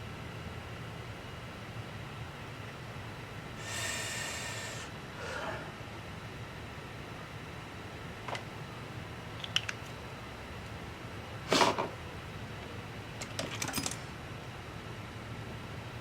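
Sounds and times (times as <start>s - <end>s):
steady low hum: 0.0s - 16.0s
clicks and taps of tools: 9.4s - 10.0s.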